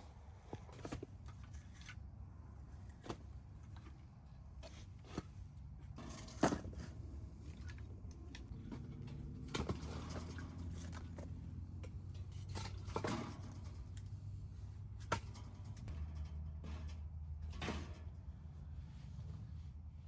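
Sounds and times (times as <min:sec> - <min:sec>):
low steady rumble: 0:01.2 - 0:20.0.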